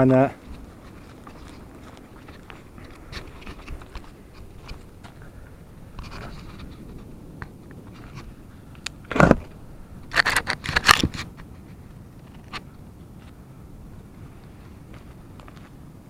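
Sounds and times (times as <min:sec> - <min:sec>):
wind rumble on microphone: 0:00.0 - 0:16.0
scraping and rattling: 0:05.9 - 0:08.4, 0:09.1 - 0:12.6.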